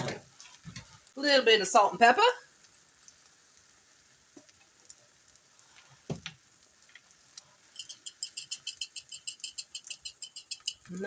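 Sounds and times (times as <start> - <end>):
pepper grinder clicking: 7.8 - 10.9.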